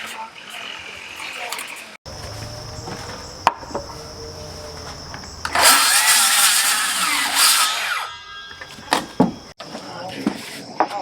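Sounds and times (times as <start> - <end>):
power tool running: 2.1 - 8.8.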